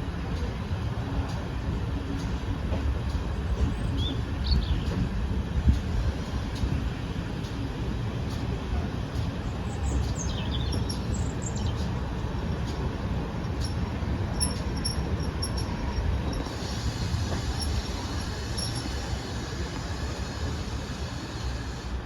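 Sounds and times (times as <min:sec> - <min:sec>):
small birds chirping: 0:03.9 - 0:05.0, 0:09.4 - 0:12.0.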